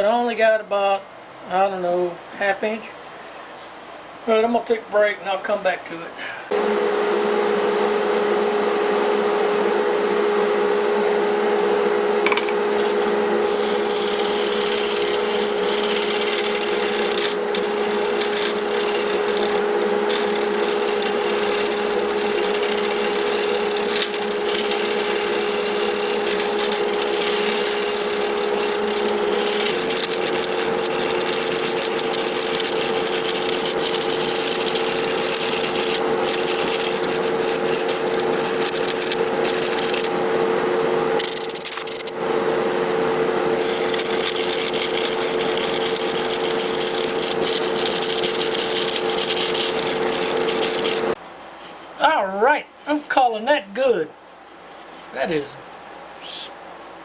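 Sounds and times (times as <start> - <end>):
tool scraping spinning wood: 6.5 - 40.4, 41.1 - 42.3, 43.1 - 53.2
wood lathe humming: 6.5 - 51.8.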